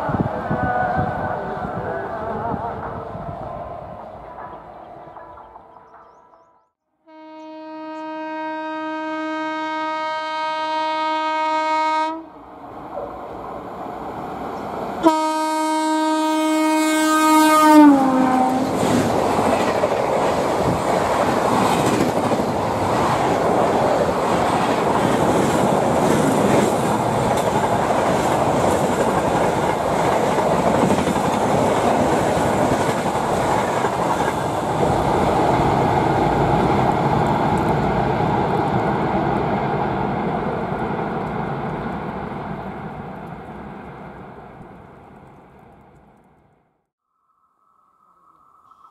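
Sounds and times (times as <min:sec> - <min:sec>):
locomotive horn blasts: 0:07.0 - 0:12.3, 0:15.0 - 0:18.8
train coaches rushing past: 0:17.4 - 0:46.0
train wheel clatter: 0:18.7 - 0:35.2.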